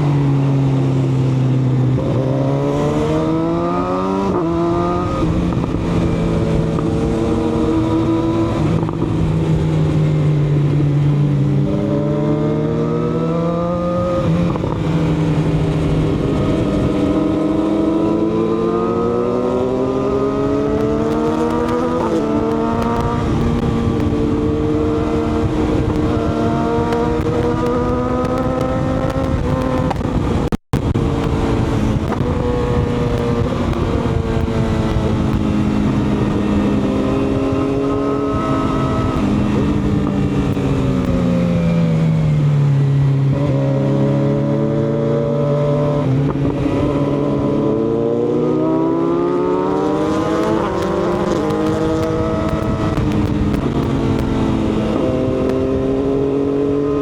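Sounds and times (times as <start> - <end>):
motorcycle engine running: 13.6 - 44.8, 49.0 - 57.0.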